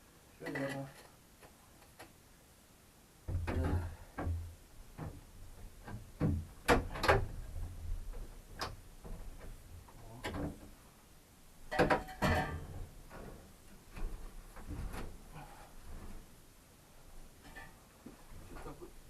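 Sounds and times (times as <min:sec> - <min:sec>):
rattling knocks: 0:11.7 - 0:13.3
camp gear knocking and clattering: 0:11.7 - 0:15.5.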